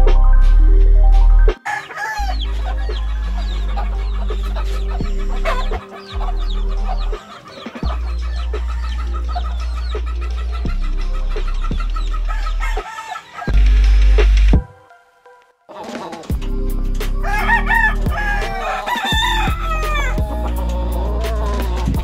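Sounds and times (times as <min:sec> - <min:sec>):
background music with low bass: 0:00.0 - 0:22.0
chickens clucking: 0:01.5 - 0:14.7, 0:15.7 - 0:22.0
rooster crowing: 0:01.6 - 0:04.1, 0:12.2 - 0:14.0, 0:17.2 - 0:22.0.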